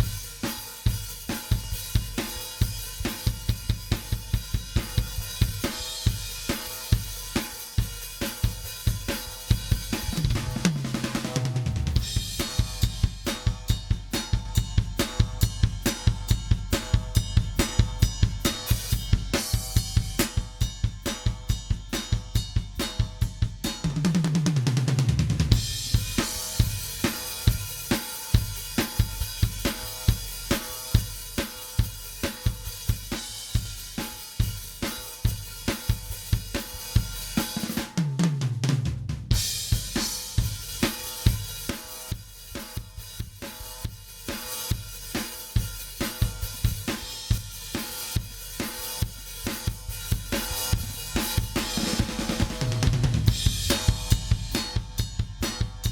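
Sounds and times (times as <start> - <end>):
rock drum beat: 0.0 - 55.9
tom drum fill: 9.5 - 21.8, 22.8 - 27.6, 50.7 - 55.9.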